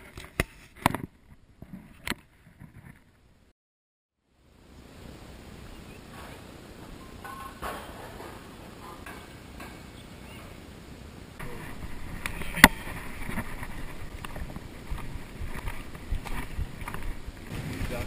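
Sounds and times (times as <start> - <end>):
footsteps crunching on stony path: 11.5 - 17.6.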